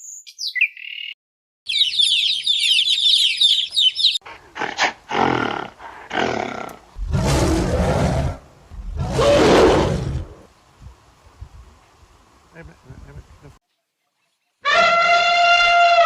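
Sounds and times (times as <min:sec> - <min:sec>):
bird chirping: 0:00.0 - 0:04.2
big cat roaring: 0:04.6 - 0:10.4.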